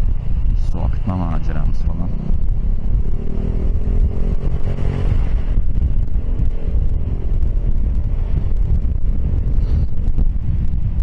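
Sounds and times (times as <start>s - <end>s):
road traffic: 0.0s - 11.0s
wind rumble on microphone: 0.0s - 11.0s.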